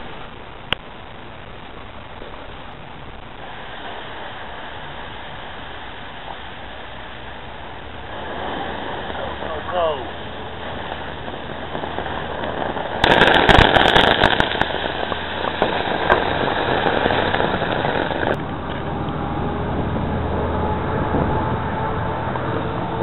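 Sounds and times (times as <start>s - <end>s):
burning sparks hissing and crackling: 0.0s - 18.4s.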